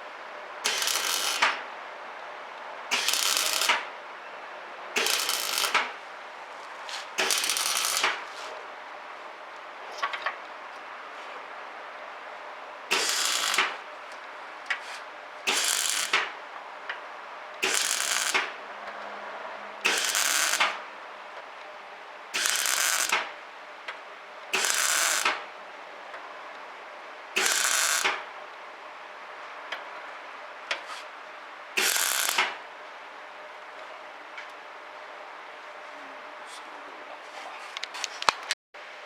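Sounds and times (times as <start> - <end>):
welder arc bursts: 0.6 - 1.6, 2.9 - 3.9, 5.0 - 6.0, 7.2 - 8.3, 12.9 - 13.8, 15.5 - 16.4, 17.6 - 18.6, 19.8 - 20.8, 22.3 - 23.3, 24.5 - 25.5, 27.4 - 28.3, 31.8 - 32.6.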